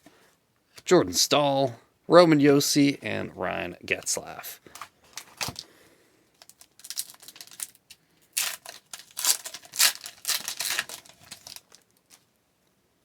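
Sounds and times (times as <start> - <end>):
foil wrapper tearing and crinkling: 4.7 - 5.6, 6.4 - 12.2.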